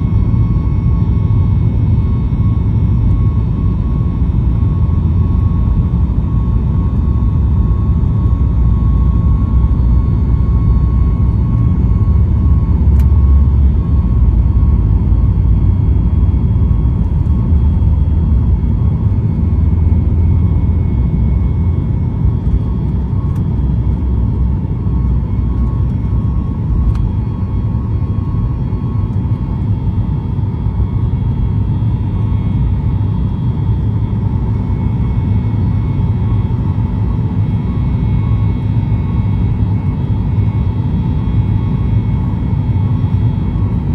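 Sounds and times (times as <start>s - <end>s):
jet engine cabin rumble: 0.0s - 43.9s
jet engine whine: 0.0s - 43.9s
small click: 12.9s - 13.1s, 26.9s - 27.1s.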